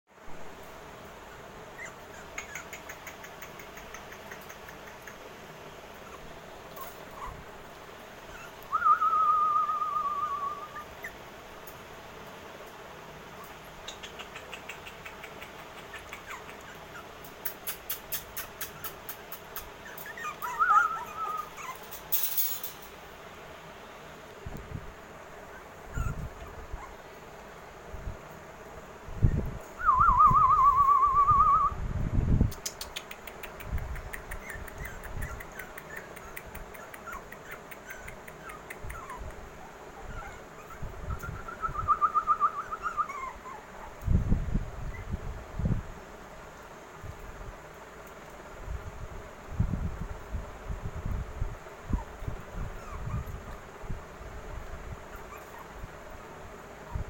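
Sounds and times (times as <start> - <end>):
puppy whining: 1.3 - 5.2, 5.9 - 11.3, 13.3 - 22.6, 25.4 - 27.1, 34.0 - 44.1, 44.8 - 45.2, 51.9 - 53.7, 54.9 - 55.9
quick light ticks: 2.3 - 5.3, 13.8 - 20.5, 32.5 - 39.4.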